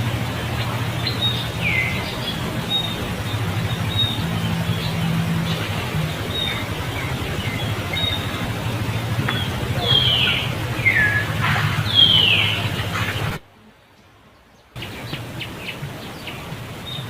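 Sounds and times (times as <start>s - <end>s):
steady low hum: 0.0s - 13.4s
birds chirping: 0.0s - 17.0s.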